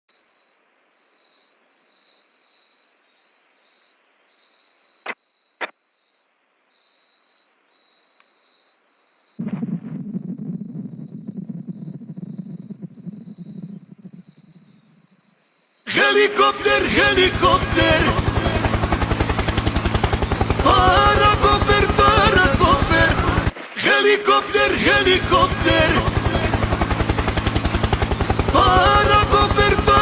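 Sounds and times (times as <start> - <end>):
insects chirping: 0.1 - 28.5
low fluttering rumble: 9.4 - 15.0, 17.0 - 23.5, 24.7 - 30.0.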